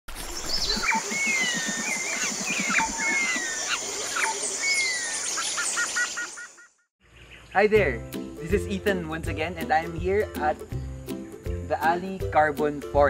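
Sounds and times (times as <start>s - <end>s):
bird chirps: 0.3s - 7.6s
bird whistling phrase: 0.5s - 5.2s.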